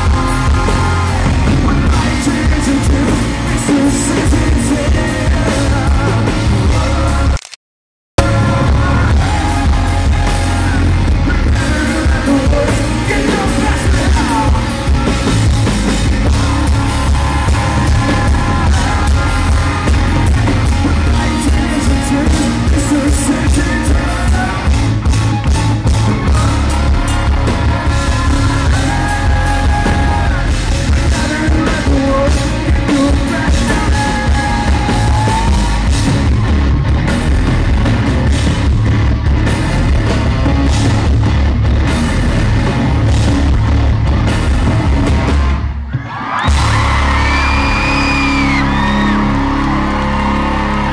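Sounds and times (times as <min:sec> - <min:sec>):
fans whooping and screaming: 0:00.0 - 0:03.4, 0:13.2 - 0:31.5, 0:33.5 - 0:36.7, 0:44.9 - 0:50.9
lead vocals singing: 0:00.0 - 0:07.4, 0:08.2 - 0:36.1
live rock band playing: 0:00.0 - 0:07.4, 0:08.2 - 0:50.9
pounding drums: 0:08.2 - 0:50.6.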